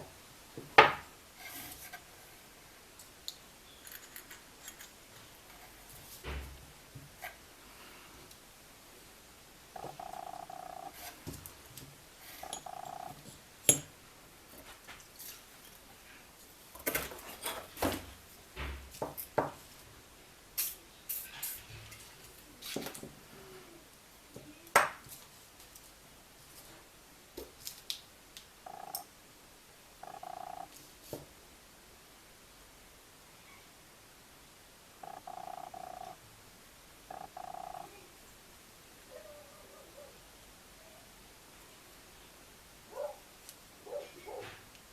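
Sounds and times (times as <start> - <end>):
tools clicking and clinking: 3.8 - 5.0.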